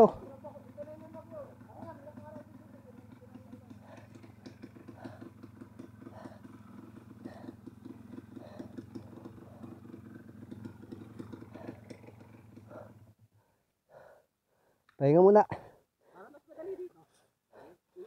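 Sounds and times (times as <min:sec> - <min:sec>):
dirt bike engine chugging: 0:00.0 - 0:14.7.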